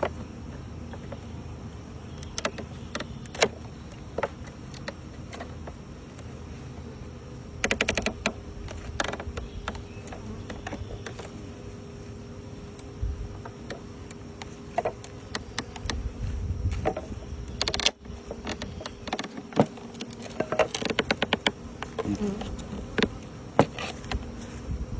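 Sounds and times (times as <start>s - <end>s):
honeybees buzzing: 0.0s - 24.9s
wooden equipment clicks and knocks: 7.6s - 11.4s, 16.7s - 23.8s.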